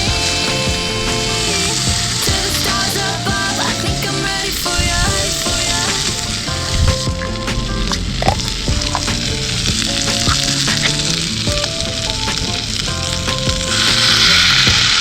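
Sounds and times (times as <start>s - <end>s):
background music: 0.0s - 15.0s
food sizzling over campfire: 0.0s - 15.0s.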